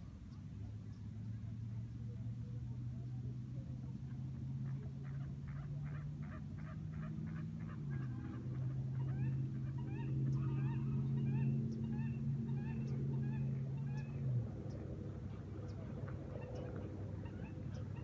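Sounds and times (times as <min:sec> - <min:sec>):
birds chirping: 0:04.6 - 0:18.0.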